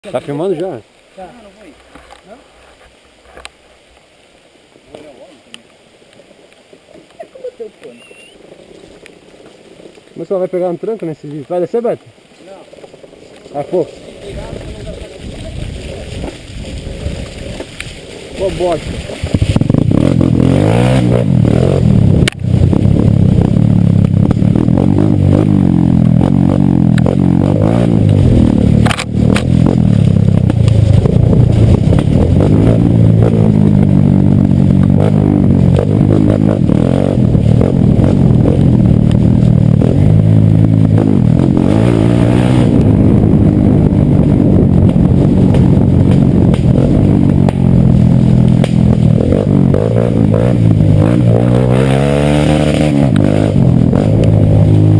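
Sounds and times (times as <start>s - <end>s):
motorcycle engine revving: 13.0s - 54.9s.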